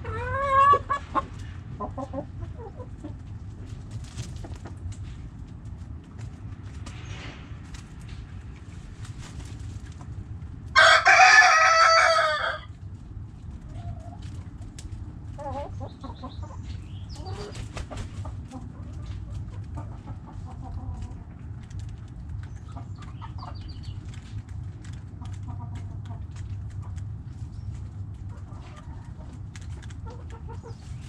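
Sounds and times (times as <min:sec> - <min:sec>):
hens clucking: 0:00.0 - 0:05.5, 0:09.4 - 0:31.0
low background rumble: 0:00.0 - 0:31.0
rooster crowing: 0:10.8 - 0:12.7.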